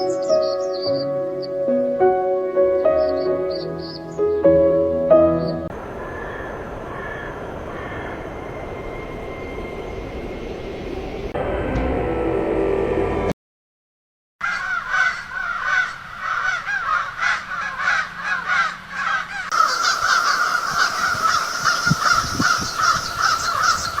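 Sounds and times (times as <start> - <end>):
birds calling rapidly: 0.0 - 1.6, 5.4 - 8.7, 14.4 - 24.0.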